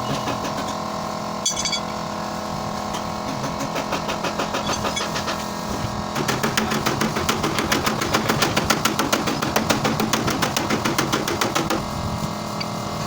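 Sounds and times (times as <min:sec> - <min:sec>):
sharp metallic clink: 0:01.4 - 0:02.0.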